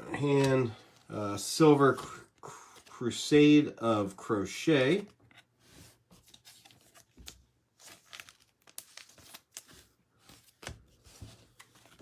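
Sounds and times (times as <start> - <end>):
trading cards rustling and crinkling: 0.1 - 12.0.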